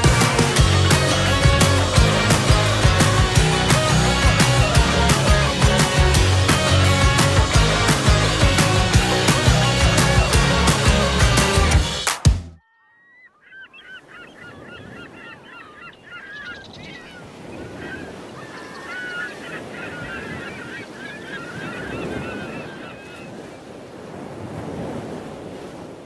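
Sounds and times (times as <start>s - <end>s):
flock of birds calling: 0.0s - 12.0s, 12.7s - 23.5s.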